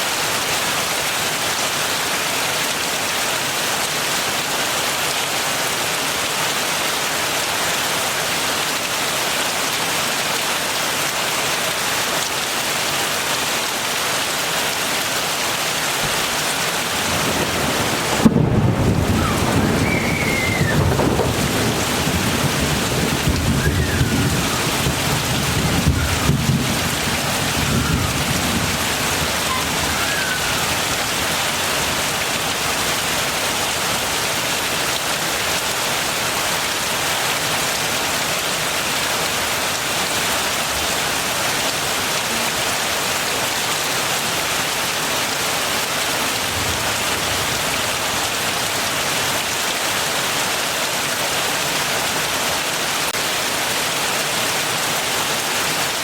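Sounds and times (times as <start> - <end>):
heavy rain falling: 0.0 - 56.0
low rumble of thunder: 17.0 - 30.5.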